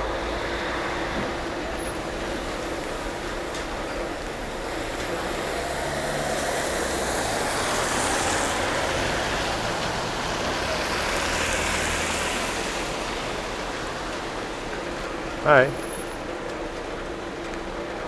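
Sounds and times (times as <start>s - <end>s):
vehicle driving past on wet road: 5.1s - 14.7s.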